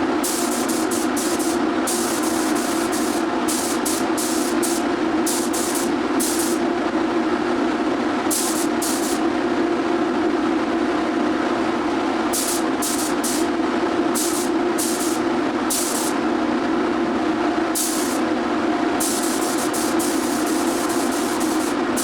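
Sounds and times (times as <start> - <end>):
steady machine hum: 0.0 - 22.0
spray gun hissing in bursts: 0.2 - 6.6, 8.3 - 9.2, 12.3 - 13.6, 14.2 - 16.2, 17.8 - 18.3, 19.0 - 22.0.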